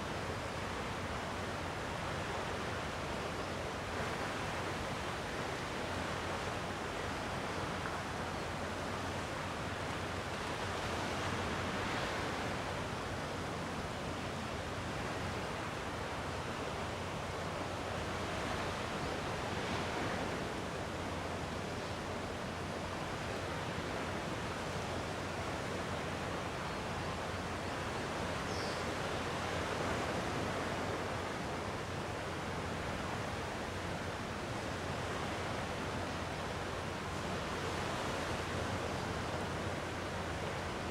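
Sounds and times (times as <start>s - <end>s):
calm sea waves washing in: 17.6s - 24.9s.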